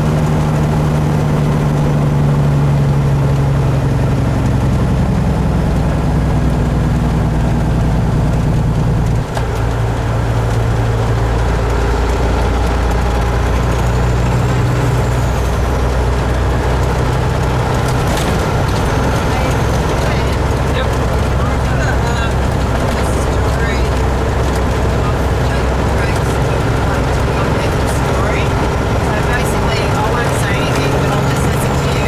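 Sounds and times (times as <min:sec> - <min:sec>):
diesel truck engine running: 0:00.0 - 0:32.0.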